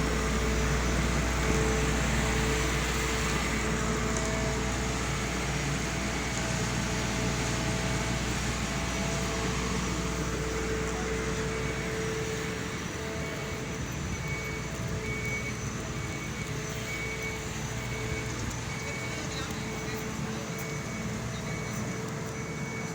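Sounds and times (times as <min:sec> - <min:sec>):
engine running with hum: 0:00.0 - 0:22.9.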